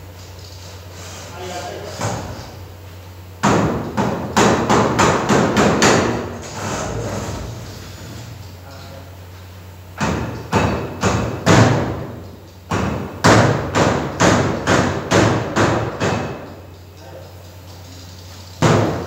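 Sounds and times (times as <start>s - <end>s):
steady low hum: 0.0s - 19.0s
loud ringing knocks: 3.4s - 6.3s, 10.0s - 16.6s, 18.6s - 19.0s.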